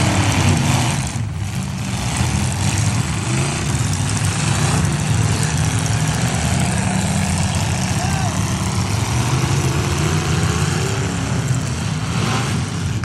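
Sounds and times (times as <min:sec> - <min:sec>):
truck engines running: 0:00.0 - 0:13.0.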